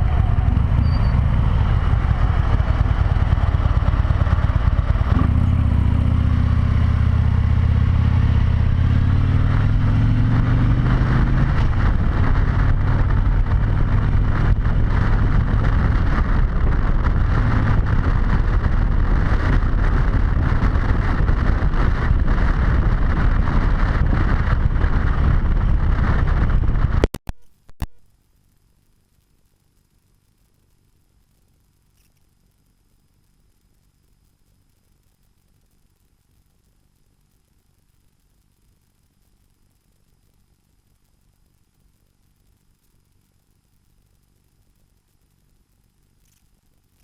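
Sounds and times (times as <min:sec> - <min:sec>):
wind rush on helmet: 0:00.0 - 0:27.1
motorcycle engine accelerating: 0:00.0 - 0:27.2.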